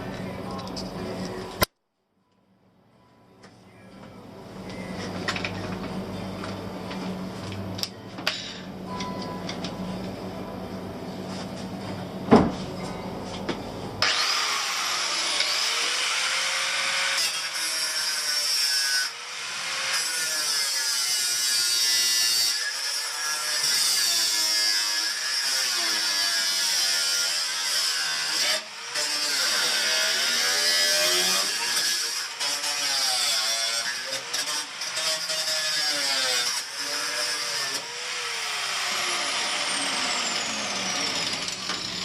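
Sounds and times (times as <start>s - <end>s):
angle grinder grinding steel: 14.0s - 42.0s.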